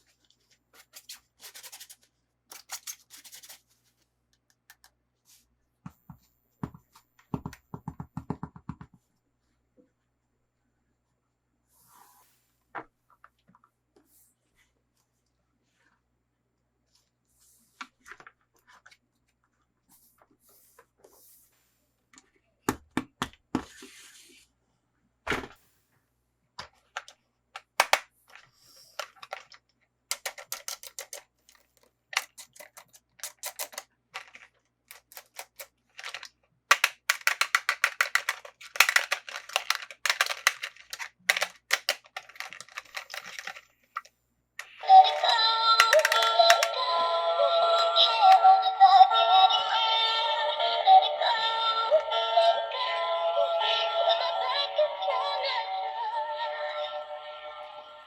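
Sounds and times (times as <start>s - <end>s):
plastic toy pieces clicking: 2.5s - 3.6s, 27.8s - 28.1s, 29.0s - 46.8s
music with synthesized singing: 44.8s - 58.0s.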